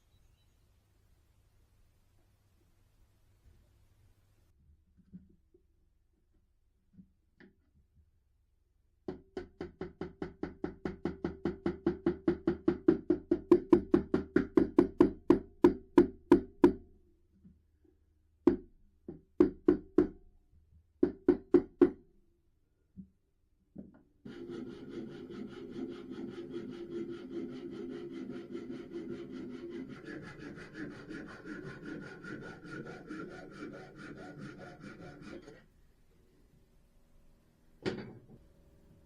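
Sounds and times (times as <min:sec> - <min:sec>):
hammering on wood: 0:09.1 - 0:16.8, 0:19.4 - 0:20.2.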